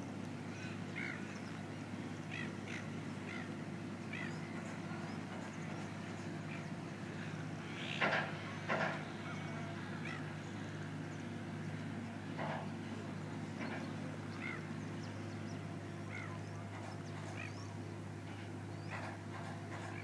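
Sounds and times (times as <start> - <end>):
low mechanical hum: 0.0 - 20.0
loud harsh bird calls: 2.2 - 10.8, 12.3 - 17.8.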